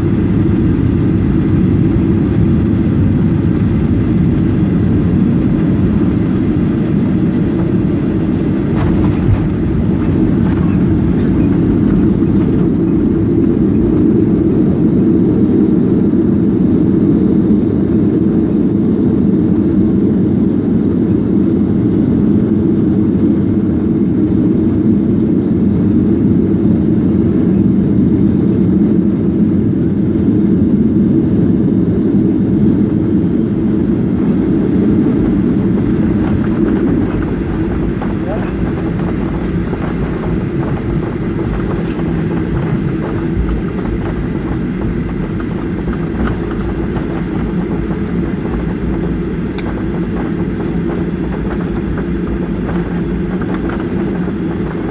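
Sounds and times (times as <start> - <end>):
airflow past fuselage: 0.0 - 15.5, 33.3 - 54.9
airplane engines rumbling: 0.0 - 54.9.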